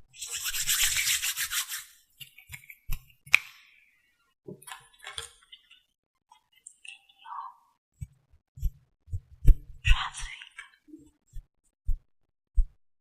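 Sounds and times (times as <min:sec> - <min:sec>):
scratchy brushing: 0:00.2 - 0:02.8.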